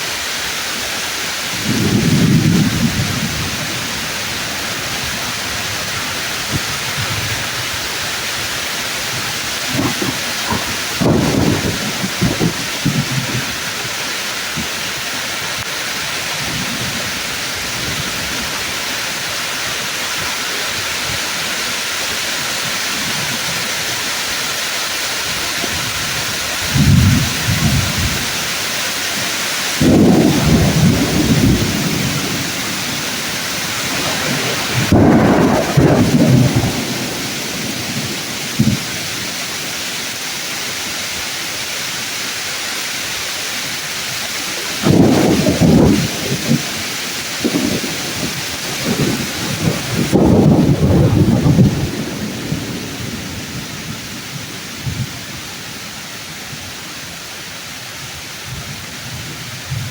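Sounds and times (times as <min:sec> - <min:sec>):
heavy rain on leaves: 0:00.0 - 0:59.9
thunder rumbling: 0:01.4 - 0:19.2, 0:25.4 - 0:41.2, 0:44.3 - 0:55.9
thunder crack: 0:01.5 - 0:07.6, 0:09.2 - 0:13.8, 0:29.8 - 0:40.2, 0:44.6 - 0:55.2.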